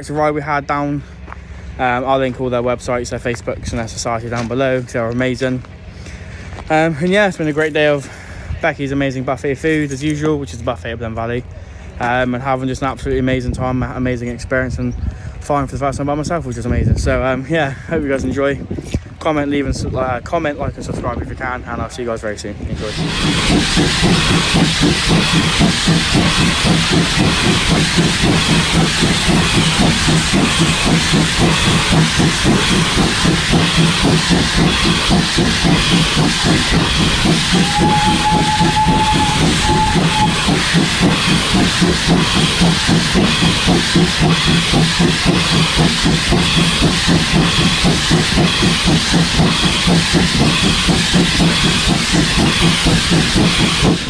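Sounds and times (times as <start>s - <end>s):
steam locomotive chuffing: 20.6s - 54.0s
high locomotive whistle: 22.8s - 54.0s
steam hissing: 22.8s - 54.0s.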